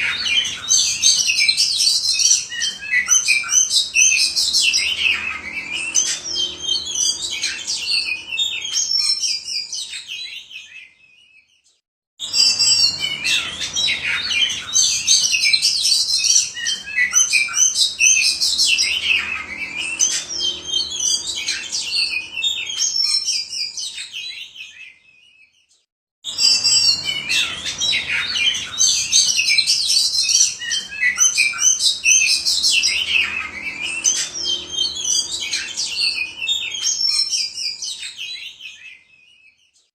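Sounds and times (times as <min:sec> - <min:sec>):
songbird whistling and chirping: 0:00.0 - 0:39.9.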